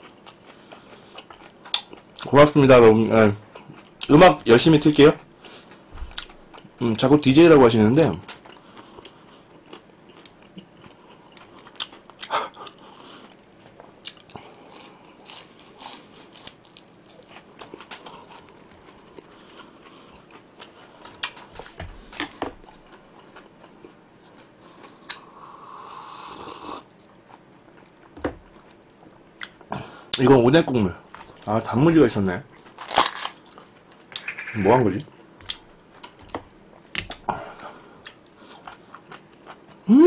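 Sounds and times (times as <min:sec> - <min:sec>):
crunching fried shrimp: 0:08.1 - 0:25.3, 0:32.4 - 0:36.4.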